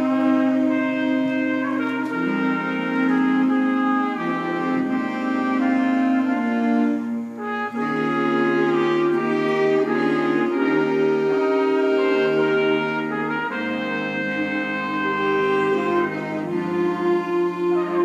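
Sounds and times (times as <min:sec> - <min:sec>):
wind band playing sustained chords: 0:00.0 - 0:18.0.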